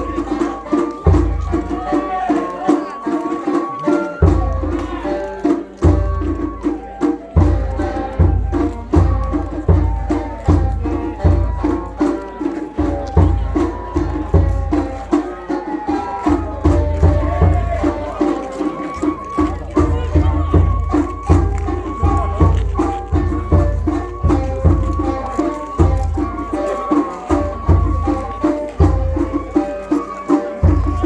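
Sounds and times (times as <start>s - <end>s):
high flute melody: 0.0s - 31.0s
taiko drums beating: 0.0s - 31.0s.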